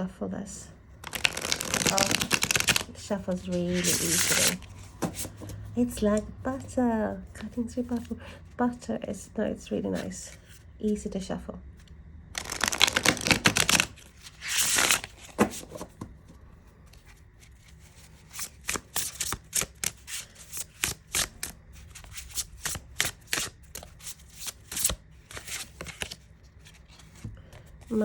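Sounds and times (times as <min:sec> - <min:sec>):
cards being shuffled: 0:01.0 - 0:05.6, 0:12.4 - 0:16.0, 0:16.9 - 0:28.0.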